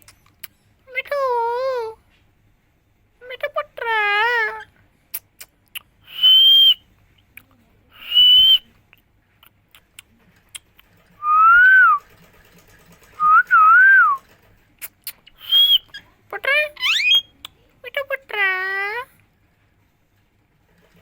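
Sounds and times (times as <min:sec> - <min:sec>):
parrot whistling: 0:06.0 - 0:06.8, 0:08.0 - 0:08.6, 0:15.4 - 0:16.0, 0:16.8 - 0:17.3.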